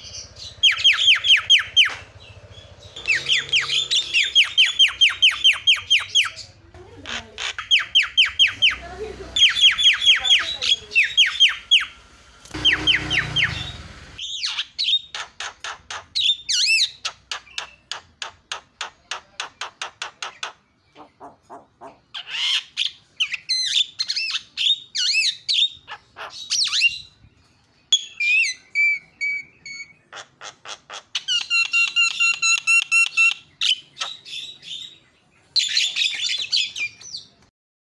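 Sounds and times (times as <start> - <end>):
harsh rasping bird call: 0.0 - 14.9
bird singing varied song: 0.0 - 37.5.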